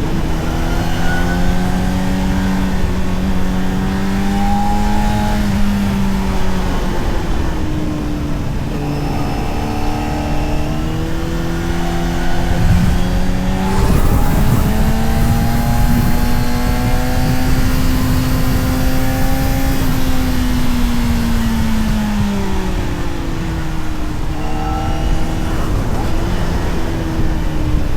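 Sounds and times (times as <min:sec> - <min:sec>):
motorcycle engine pulling: 0:00.0 - 0:27.9
wind rush: 0:08.8 - 0:27.9.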